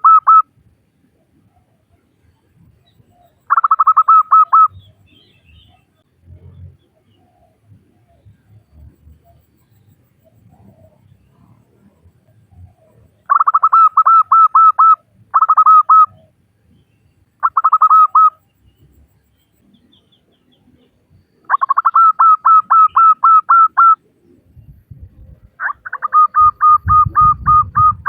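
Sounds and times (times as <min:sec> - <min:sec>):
dove cooing: 0:03.5 - 0:04.8, 0:12.5 - 0:16.4, 0:17.4 - 0:18.4, 0:25.2 - 0:28.0.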